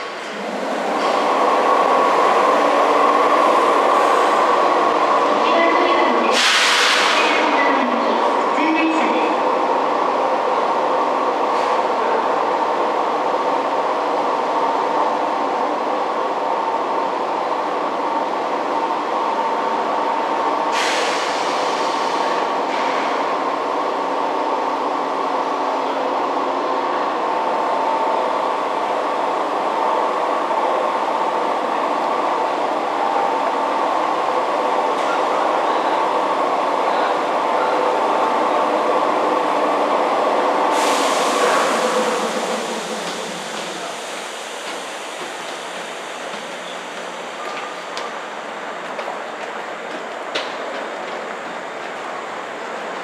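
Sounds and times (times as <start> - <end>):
air hiss: 6.3 - 7.2, 20.7 - 22.2, 40.7 - 46.2.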